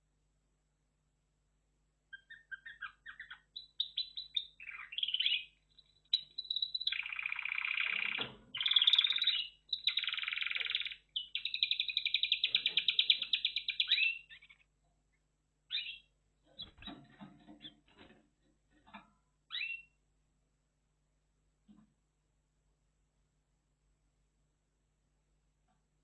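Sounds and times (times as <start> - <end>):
canary singing trills: 2.1 - 14.8, 15.7 - 17.9, 19.5 - 20.0.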